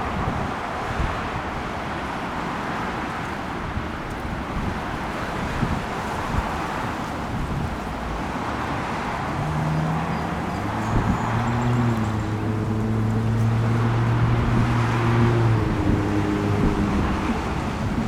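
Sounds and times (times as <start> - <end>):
rush of wind or traffic: 0.0 - 18.0
low engine hum: 6.4 - 18.0.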